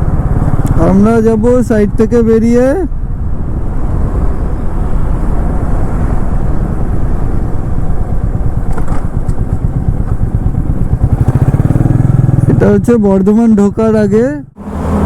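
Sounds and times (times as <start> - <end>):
motorcycle engine running: 0.0 - 1.7, 6.4 - 13.1
steady rushing noise: 0.0 - 12.8.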